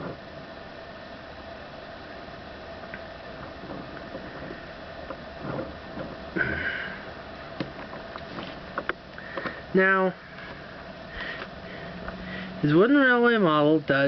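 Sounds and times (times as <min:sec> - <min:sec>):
faint hum: 0:00.0 - 0:14.0
short rustling: 0:07.7 - 0:09.6.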